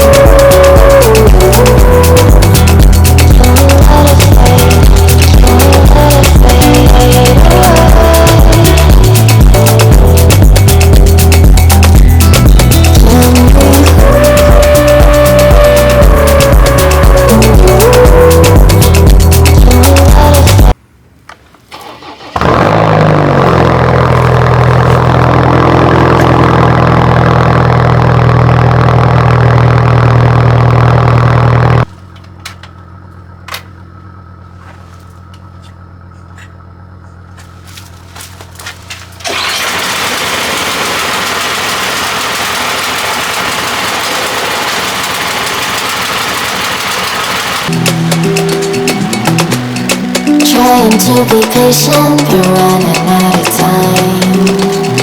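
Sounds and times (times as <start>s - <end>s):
engine starting and running: 0.0s - 55.0s
clicks: 46.1s - 55.0s.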